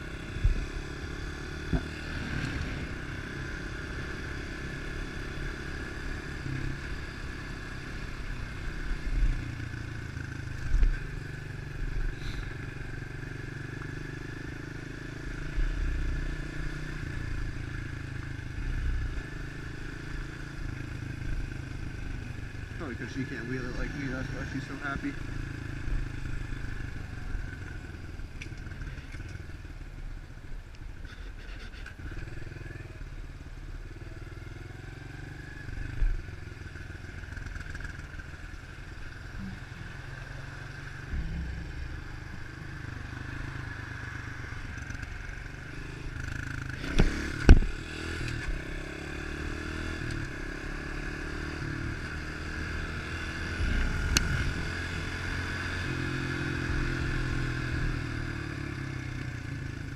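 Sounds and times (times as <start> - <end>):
motorbike engine revving: 39.2 - 59.2.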